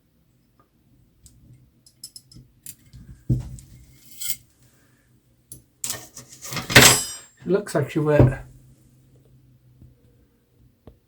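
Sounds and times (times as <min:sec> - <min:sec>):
small metal parts clinking: 0:01.9 - 0:02.8.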